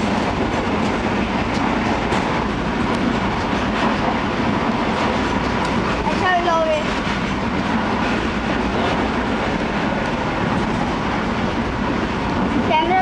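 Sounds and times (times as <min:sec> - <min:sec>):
train running noise from inside: 0:00.0 - 0:13.0.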